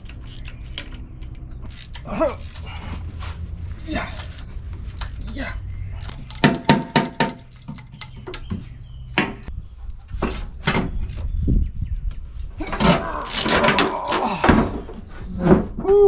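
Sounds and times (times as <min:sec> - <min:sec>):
metal scraping and rattling: 0:00.0 - 0:11.4, 0:12.6 - 0:15.8
metal tools knocking and clanking: 0:03.9 - 0:09.5.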